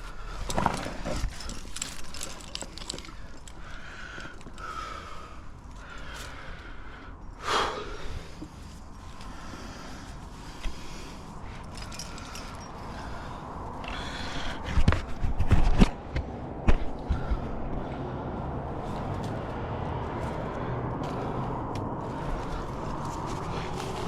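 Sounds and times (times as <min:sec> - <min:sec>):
knocks and scrapes: 0:14.6 - 0:17.5.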